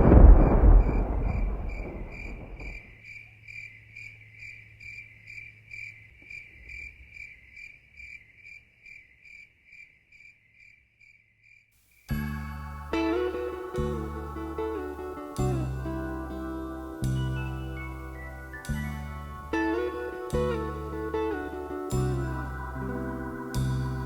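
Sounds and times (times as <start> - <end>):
thunder rumble: 0.0 - 2.9
cricket chirping: 0.0 - 24.0
guitar music: 12.4 - 24.0.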